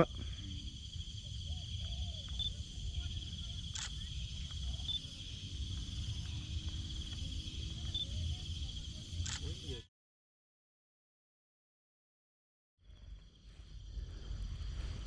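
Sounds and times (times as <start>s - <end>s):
insects droning: 0.0s - 9.9s, 12.8s - 15.0s
low wind rumble: 0.1s - 9.6s, 12.8s - 15.0s.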